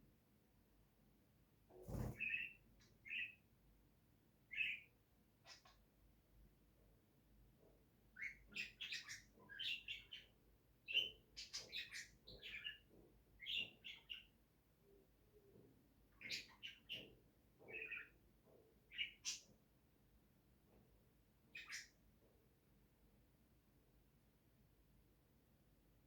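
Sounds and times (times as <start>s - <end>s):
pet bird chirping: 1.9s - 3.4s, 4.5s - 5.8s, 8.2s - 14.3s, 16.1s - 18.2s, 18.9s - 19.5s, 21.5s - 22.0s.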